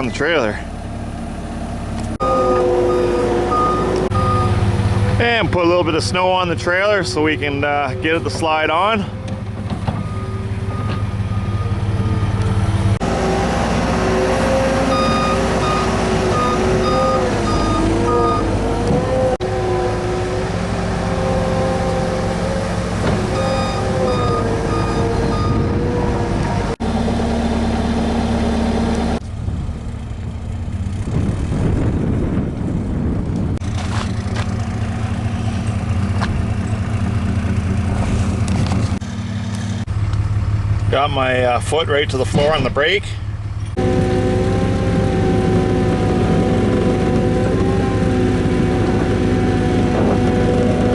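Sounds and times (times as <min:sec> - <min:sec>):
heavy equipment engine under load: 0:00.0 - 0:50.9
backup alarm beeping: 0:02.2 - 0:04.7, 0:10.0 - 0:12.4, 0:14.9 - 0:18.5, 0:23.3 - 0:25.8.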